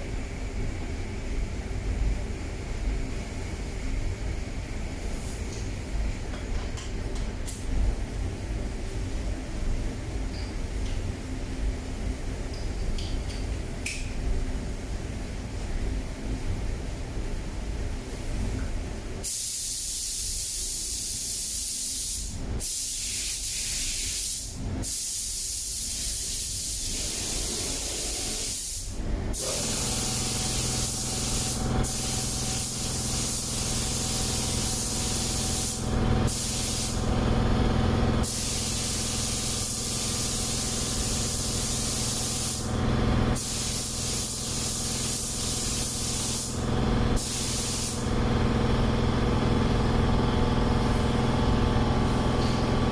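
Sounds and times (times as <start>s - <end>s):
spray gun hissing: 19.2s - 37.1s, 38.2s - 42.8s, 43.4s - 46.6s, 47.2s - 48.1s
steady machine hum: 27.4s - 52.9s.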